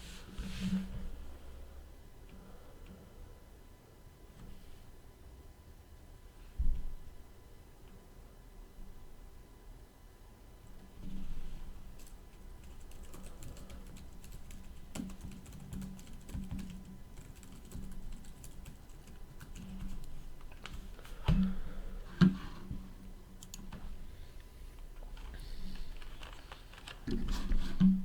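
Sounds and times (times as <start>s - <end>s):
keyboard typing: 12.0s - 20.8s, 25.2s - 27.4s.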